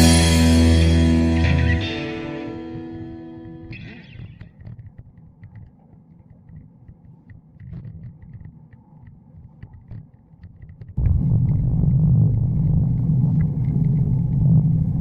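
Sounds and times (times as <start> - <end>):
wind rumble on microphone: 10.8 - 15.0.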